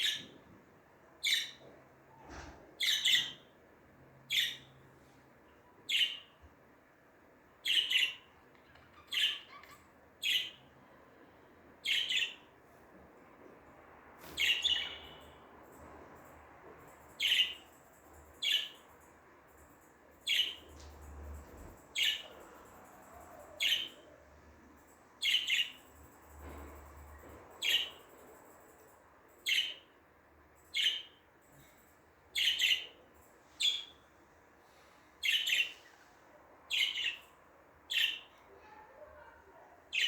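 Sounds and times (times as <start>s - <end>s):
budgerigar chirping: 7.7s - 10.6s, 37.9s - 38.3s.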